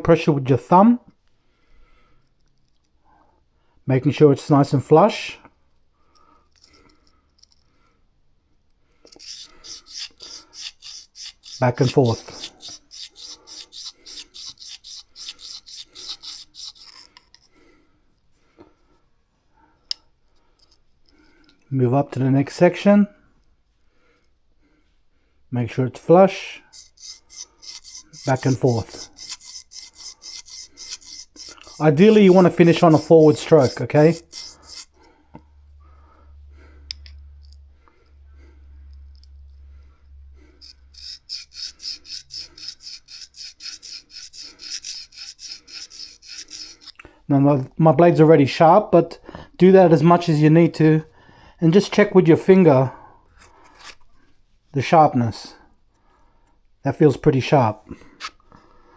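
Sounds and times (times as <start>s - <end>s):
knife rasping on sharpening stone: 9.1s - 17.5s, 26.7s - 35.0s, 40.4s - 47.0s, 53.4s - 54.1s
faint scrapes: 9.1s - 19.3s, 26.3s - 47.0s, 53.4s - 54.4s.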